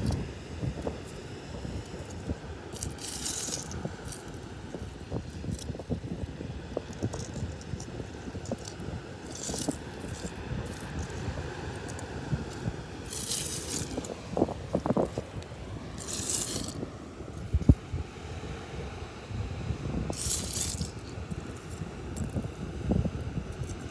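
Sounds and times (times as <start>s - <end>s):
seashells clinking: 0.8s - 16.8s, 20.1s - 22.5s.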